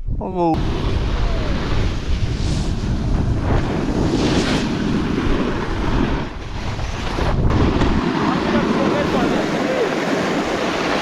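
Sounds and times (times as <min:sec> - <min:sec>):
wind buffeting microphone: 0:00.0 - 0:11.0
rushing hiss: 0:09.0 - 0:11.0.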